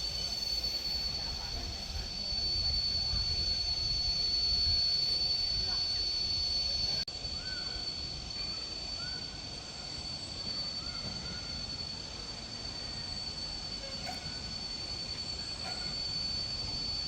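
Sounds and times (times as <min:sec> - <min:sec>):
high-pitched insect drone: 0:00.0 - 0:17.0
faint bird chirps: 0:06.6 - 0:13.2.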